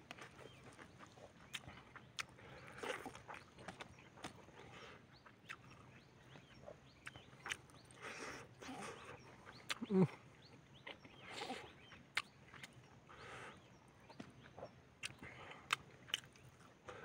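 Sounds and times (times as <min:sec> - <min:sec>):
person chewing and lip smacking: 0:00.1 - 0:12.9, 0:14.1 - 0:17.0.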